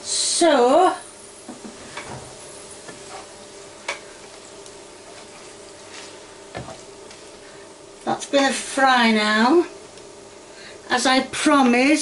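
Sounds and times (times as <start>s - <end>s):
chicken sizzling in a pan: 0.1s - 7.6s.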